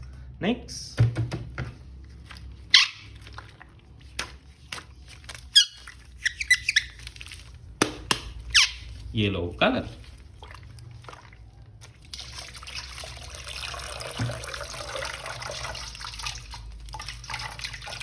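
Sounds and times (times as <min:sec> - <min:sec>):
high-pitched squeaks: 0:05.5 - 0:07.0.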